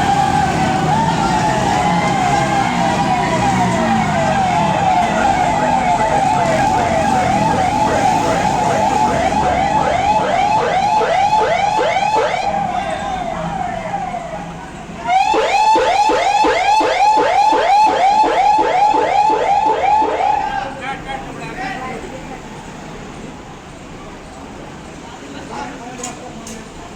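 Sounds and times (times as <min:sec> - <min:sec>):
electronic sirens yelping: 0:00.0 - 0:20.7.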